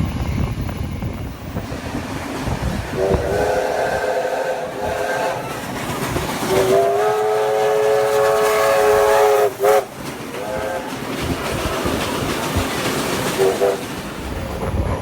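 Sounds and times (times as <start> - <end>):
train rumble and rail clatter: 0.0 - 15.0
steam locomotive whistle: 2.8 - 11.4, 13.2 - 13.9.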